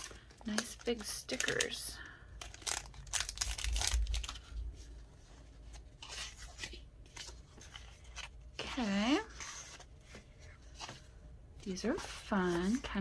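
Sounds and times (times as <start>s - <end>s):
paper packaging rustling and tearing: 0.0s - 4.9s.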